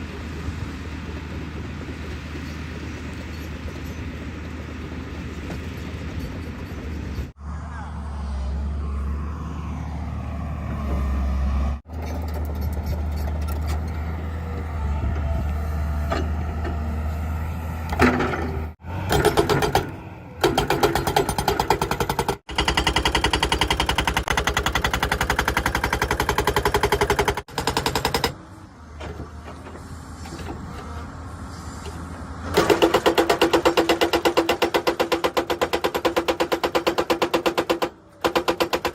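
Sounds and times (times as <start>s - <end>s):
excavator diesel engine running: 0.0s - 36.8s
hydraulic rock breaker hammering: 17.9s - 28.4s, 32.5s - 38.9s.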